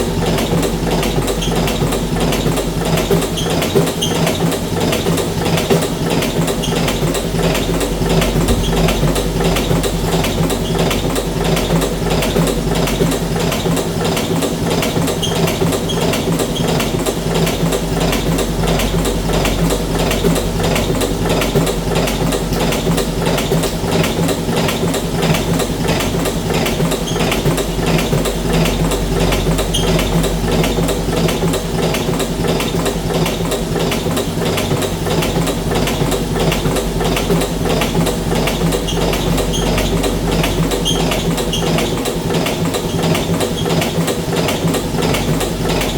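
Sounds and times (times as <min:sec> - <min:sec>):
fast mechanical clatter: 0:00.1 - 0:45.9
motor hum: 0:07.7 - 0:10.1.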